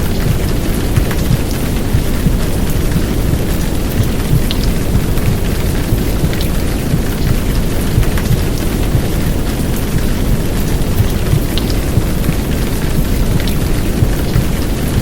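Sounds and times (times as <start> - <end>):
heavy rain downpour: 0.0 - 15.0.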